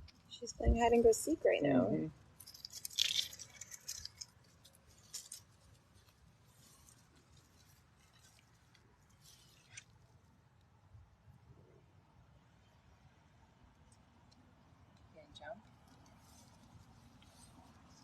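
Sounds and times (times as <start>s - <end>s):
faint scratchy clicks and rustles: 2.2s - 10.7s, 13.9s - 18.0s.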